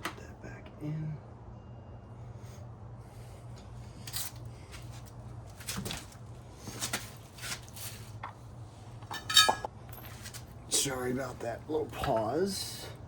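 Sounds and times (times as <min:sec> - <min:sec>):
ringing metal clink: 0:09.1 - 0:09.7.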